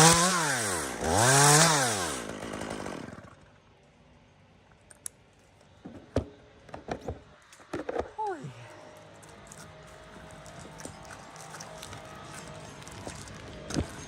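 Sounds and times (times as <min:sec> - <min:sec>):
chainsaw revving: 0:00.0 - 0:03.6, 0:09.3 - 0:14.0.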